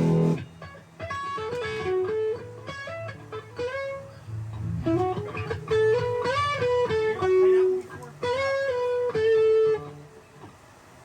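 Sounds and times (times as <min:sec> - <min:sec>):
band chord with cymbal: 0:00.0 - 0:00.4.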